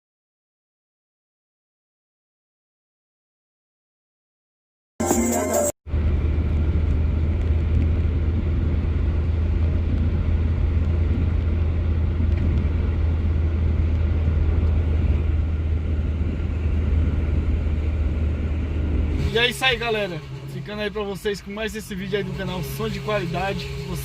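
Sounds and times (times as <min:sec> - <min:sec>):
car engine rumbling: 0:05.9 - 0:24.0.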